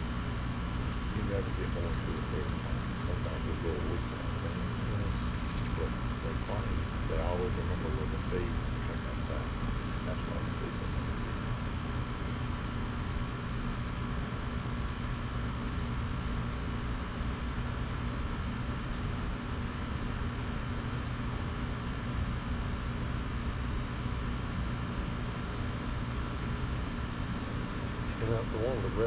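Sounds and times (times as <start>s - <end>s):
hummingbirds chirping: 0.0s - 29.0s
low hum and rumble: 0.0s - 29.0s.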